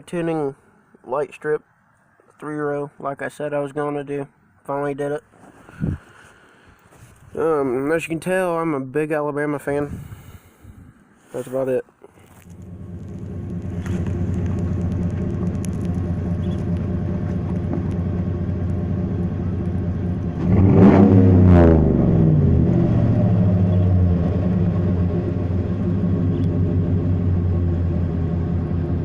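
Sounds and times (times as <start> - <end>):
pickup truck engine revving: 12.5 - 29.0.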